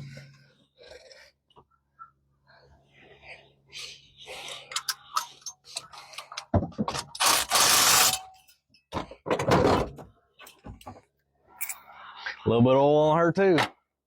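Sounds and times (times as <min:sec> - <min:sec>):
wrench ratcheting rattle on metal: 0:07.1 - 0:08.3.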